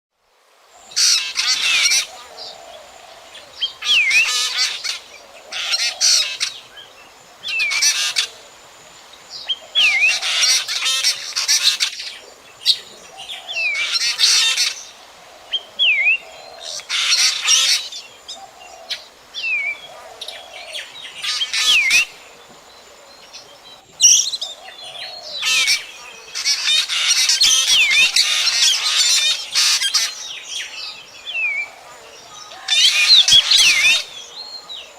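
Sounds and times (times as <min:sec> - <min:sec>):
bird harsh chattering calls: 0:03.7 - 0:06.7, 0:07.4 - 0:08.4, 0:09.6 - 0:15.0, 0:16.1 - 0:22.2, 0:24.0 - 0:30.7.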